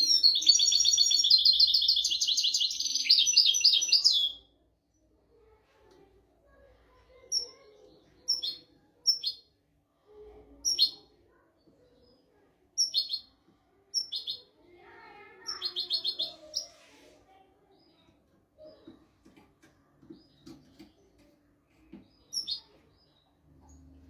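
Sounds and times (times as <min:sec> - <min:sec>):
goldfinch chirping: 0:00.1 - 0:04.1.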